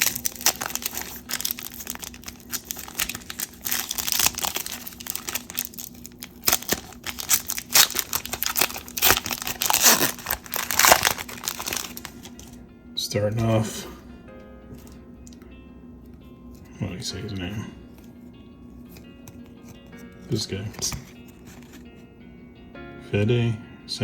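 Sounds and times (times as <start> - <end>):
plastic wrapper crinkling and tearing: 0.0 - 12.6, 20.8 - 21.8.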